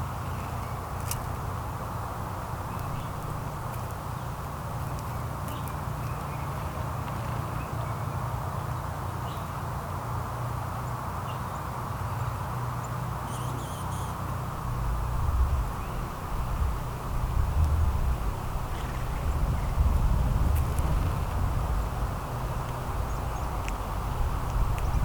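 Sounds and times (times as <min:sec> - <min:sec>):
outdoor background hum: 0:00.0 - 0:25.0
faint bird chirps: 0:12.8 - 0:14.3.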